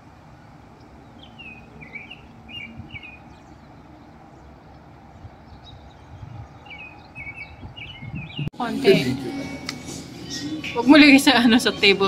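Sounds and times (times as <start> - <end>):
small songbird chirping: 0.2 - 8.5.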